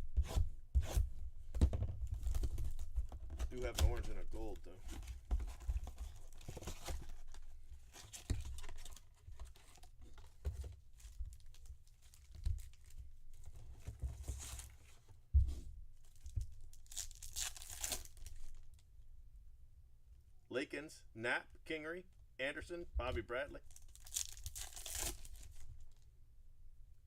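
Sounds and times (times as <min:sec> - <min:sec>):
wrapper tearing and crinkling: 0:16.7 - 0:18.8, 0:23.7 - 0:25.9.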